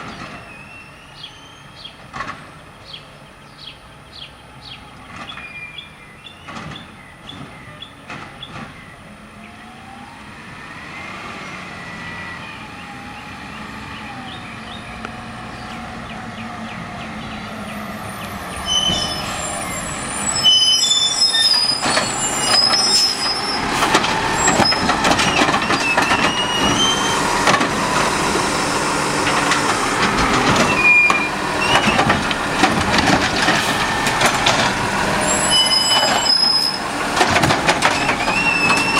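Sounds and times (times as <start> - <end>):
garbage truck engine and hydraulics: 0.0 - 38.9
high metallic squeals: 18.5 - 27.4, 30.6 - 32.2, 35.2 - 36.9, 37.8 - 38.9
metal clanks and clatter: 23.8 - 27.8, 29.2 - 34.8, 37.1 - 38.9.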